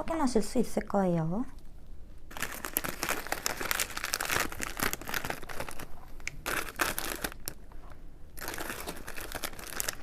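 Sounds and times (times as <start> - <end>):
plastic snack bag crinkling: 2.3 - 7.8, 8.4 - 10.0.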